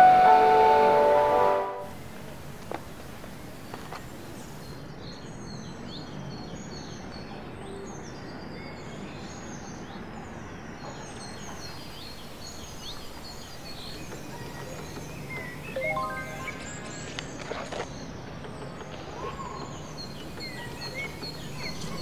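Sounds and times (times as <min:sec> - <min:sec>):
birds chirping: 0:11.2 - 0:22.0.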